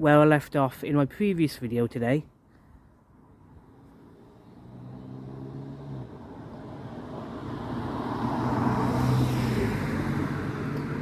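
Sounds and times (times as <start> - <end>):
car approaching: 3.1 - 11.0.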